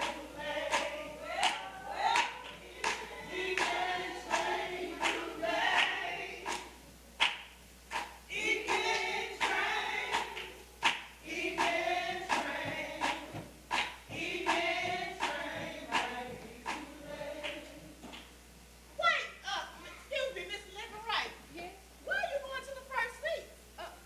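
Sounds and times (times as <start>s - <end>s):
group singing gospel song: 0.0s - 7.3s, 7.9s - 18.3s
sharp regular beat: 0.0s - 17.4s.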